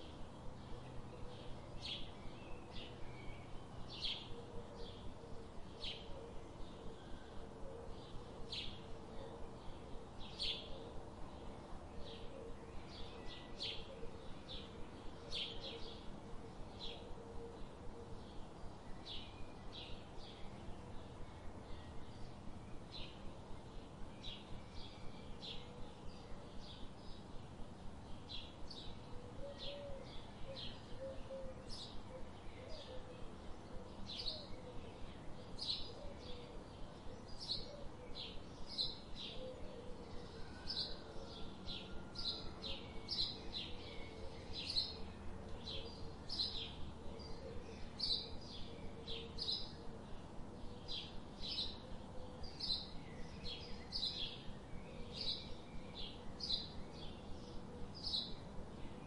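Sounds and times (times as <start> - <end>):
small birds chirping: 42.2 - 59.0.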